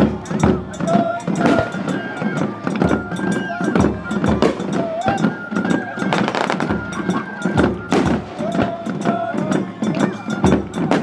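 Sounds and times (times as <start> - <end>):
high-pitched firework tones: 0.7 - 9.2
fireworks shells bursting and banging: 6.1 - 7.0.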